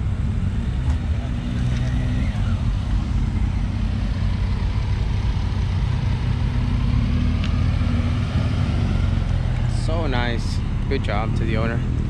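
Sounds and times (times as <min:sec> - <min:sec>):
car engines rumbling past: 0:00.0 - 0:12.0.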